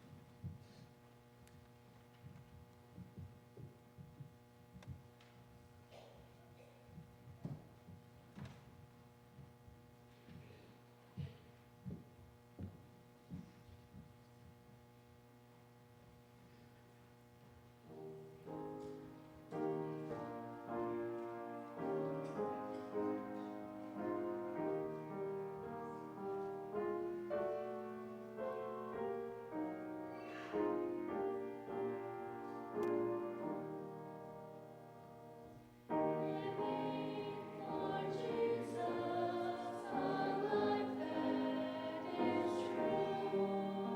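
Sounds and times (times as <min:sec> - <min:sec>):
piano playing hymn chords: 0:17.9 - 0:43.9.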